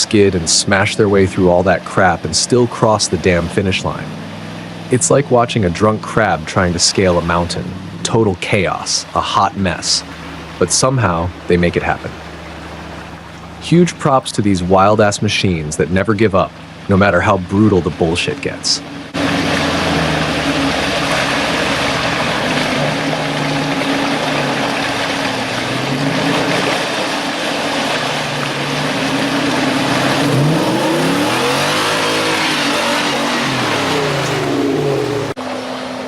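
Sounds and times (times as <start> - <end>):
steady noise haze: 0.0 - 19.2
truck engine revving: 0.0 - 35.4.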